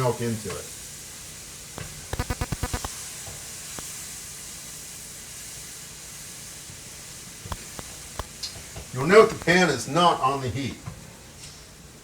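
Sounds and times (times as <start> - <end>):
roux sizzling in a pan: 0.0 - 10.6.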